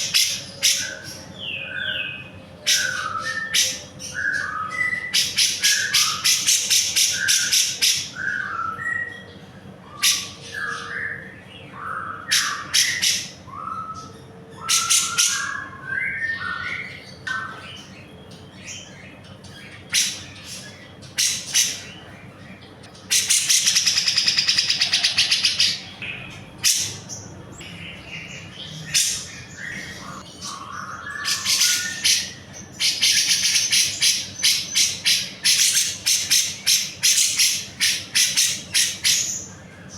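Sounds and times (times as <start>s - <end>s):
bird rapid chattering trills: 19.1s - 27.4s, 28.3s - 39.6s
bird whistled phrases: 29.0s - 39.3s.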